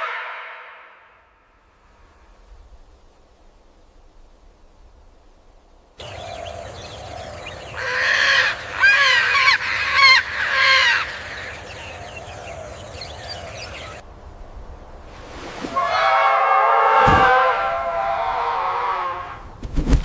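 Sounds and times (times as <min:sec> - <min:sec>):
birds chirping: 0:05.7 - 0:14.9
large bird honking: 0:06.0 - 0:14.0.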